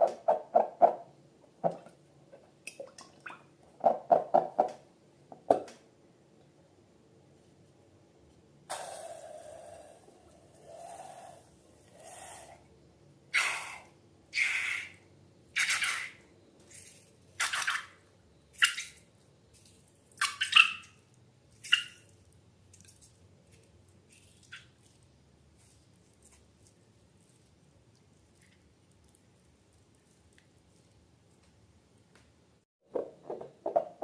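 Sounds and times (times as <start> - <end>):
slime squelching: 18.7 - 31.6.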